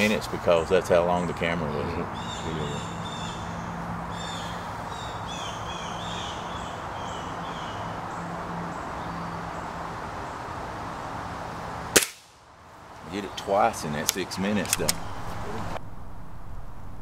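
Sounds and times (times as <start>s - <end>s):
bird chirping: 0.6s - 10.4s
low hum: 14.8s - 17.0s.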